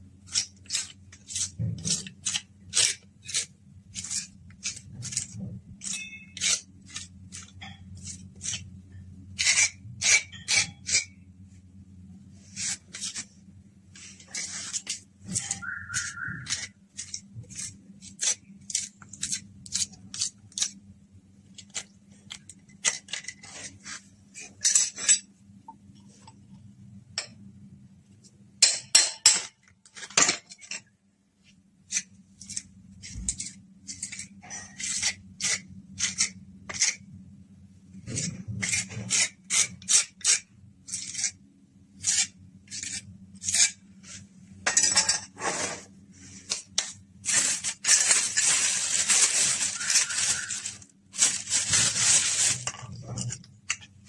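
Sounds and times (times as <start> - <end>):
tools scraping and clinking on pipes: 4.0 - 8.6, 14.2 - 20.7, 31.9 - 35.6, 44.6 - 45.8, 46.5 - 54.0.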